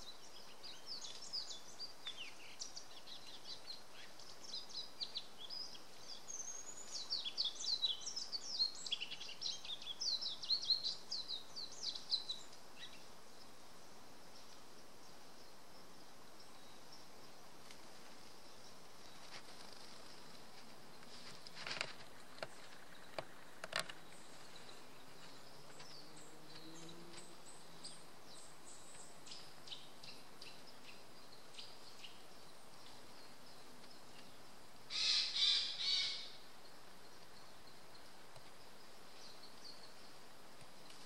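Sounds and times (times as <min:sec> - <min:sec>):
thin high bird calls: 0:34.9 - 0:36.4.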